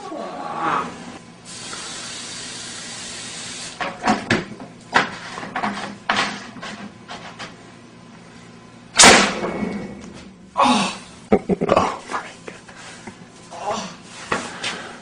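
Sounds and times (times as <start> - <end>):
aerosol spray hissing: 1.5 - 3.8.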